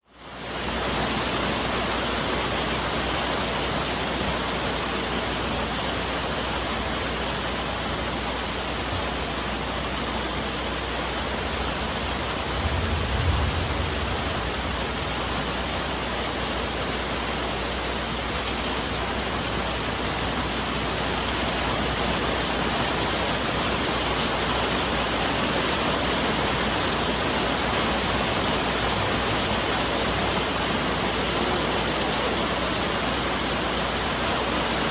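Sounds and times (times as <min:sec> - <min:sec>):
rain falling on foliage: 0:00.0 - 0:34.9
low rumble: 0:11.9 - 0:16.0.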